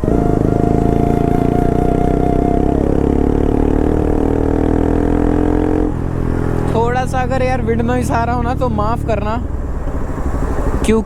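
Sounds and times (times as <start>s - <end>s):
motorcycle engine at high revs: 0.0s - 11.0s.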